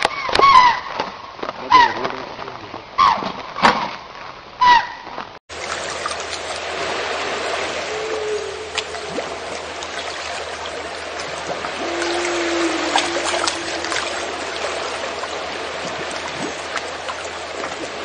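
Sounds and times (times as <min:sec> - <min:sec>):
running water: 0:05.5 - 0:18.0.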